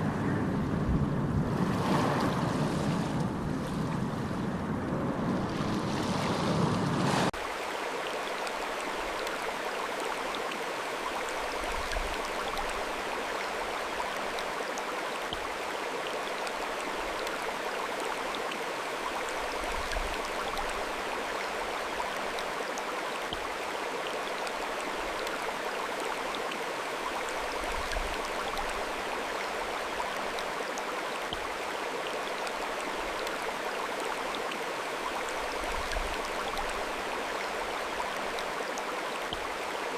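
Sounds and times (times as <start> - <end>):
surf and wind: 0.0 - 7.5
flowing stream rushing: 5.4 - 39.9.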